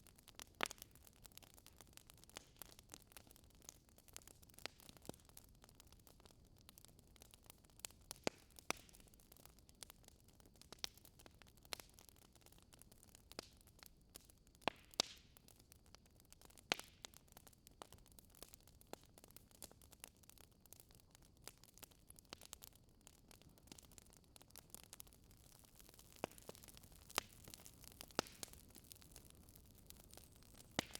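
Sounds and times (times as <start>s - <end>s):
fireplace crackling: 21.4s - 30.9s.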